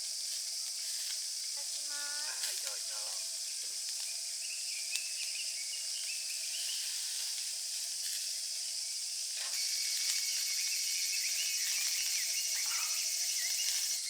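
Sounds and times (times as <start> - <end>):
cicadas calling: 0.0 - 14.0.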